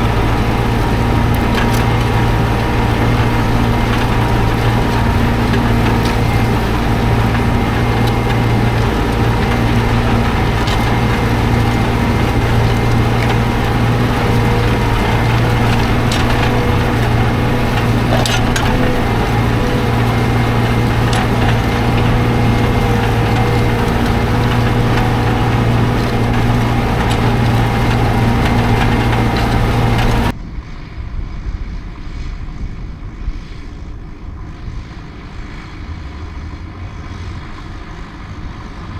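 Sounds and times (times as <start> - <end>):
distant engine-like rumble: 0.0 - 30.4
tractor engine running: 0.0 - 30.4.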